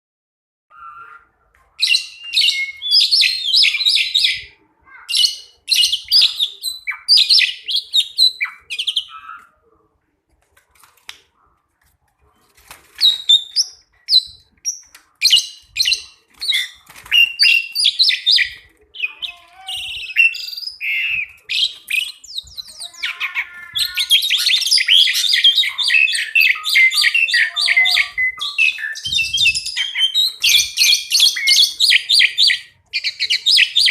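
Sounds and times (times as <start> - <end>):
starlings singing: 13.0 - 33.9.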